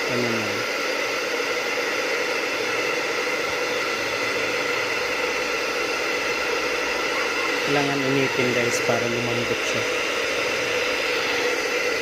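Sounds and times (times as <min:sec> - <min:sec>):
hot-air blower hissing: 0:00.0 - 0:12.0.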